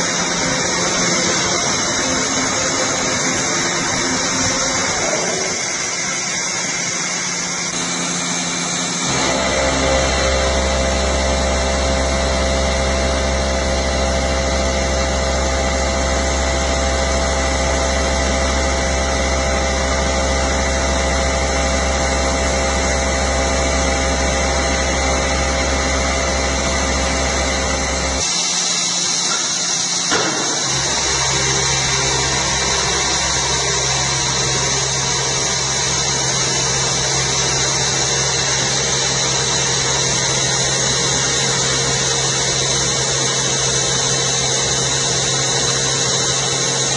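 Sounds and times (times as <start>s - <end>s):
deep hum: 0.0s - 28.2s
industrial machinery hissing: 0.0s - 46.9s
multi-tone whine: 0.0s - 46.9s.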